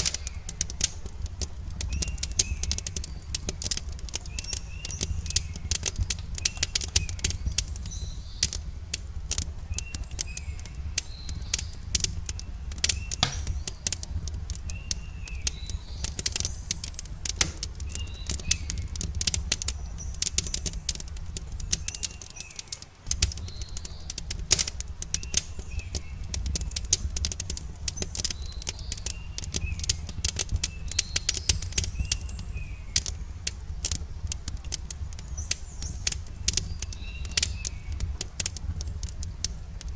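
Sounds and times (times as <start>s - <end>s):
wood fire crackling: 0.0s - 39.9s
bird chirping: 12.4s - 13.9s, 14.6s - 18.9s.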